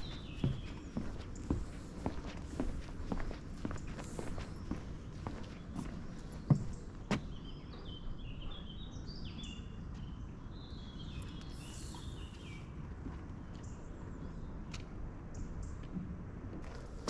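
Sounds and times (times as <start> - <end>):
footstep: 0.0 - 7.4
songbird singing: 0.0 - 14.7
low outdoor background noise: 0.0 - 17.0.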